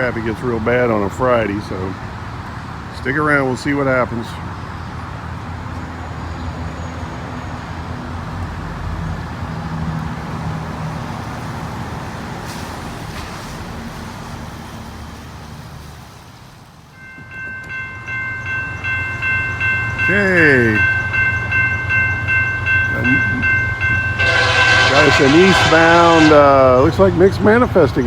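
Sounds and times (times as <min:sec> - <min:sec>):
railroad crossing warning bell: 0:16.9 - 0:28.0.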